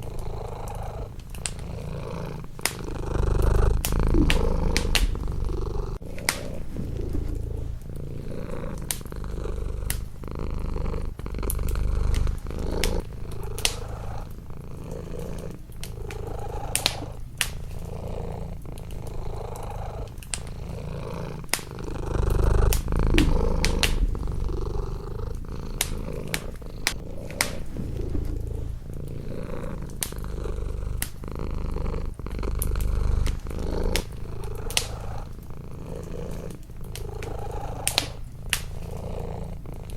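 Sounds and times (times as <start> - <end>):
cat purring: 0.0 - 39.9
wood fire crackling: 0.0 - 39.9.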